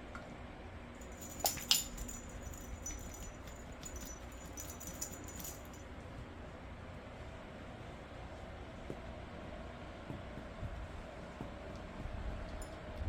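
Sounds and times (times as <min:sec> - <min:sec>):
dog tags jingling on collar: 0:01.0 - 0:05.9.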